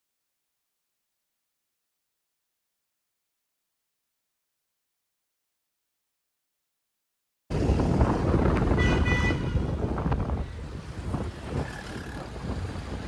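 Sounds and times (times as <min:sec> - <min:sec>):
wind buffeting microphone: 0:07.5 - 0:13.0.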